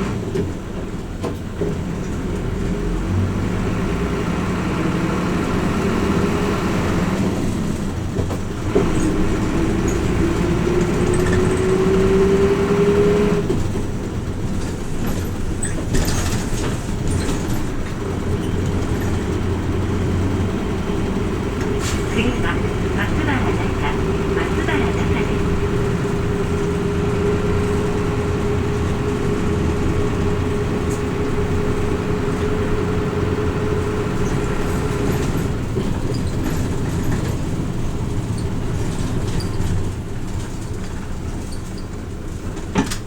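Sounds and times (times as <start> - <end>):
bus body rattles: 0.0 - 43.0
bus engine humming: 0.0 - 43.0
rising drivetrain whine: 0.0 - 43.0.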